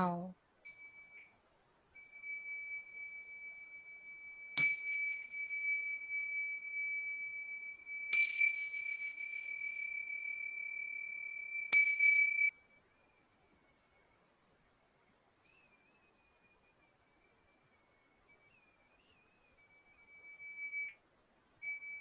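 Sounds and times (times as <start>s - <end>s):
singing bowl ringing: 0.6s - 1.4s, 2.0s - 13.1s, 18.3s - 21.0s, 21.6s - 22.0s.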